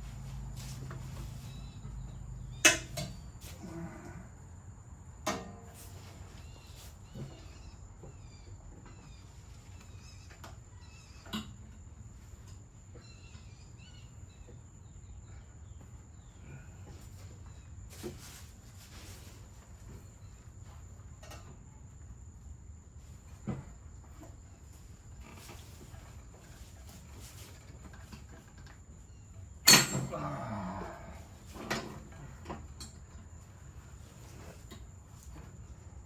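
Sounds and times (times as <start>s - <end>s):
faint bird chirps: 1.2s - 2.9s, 12.2s - 17.8s.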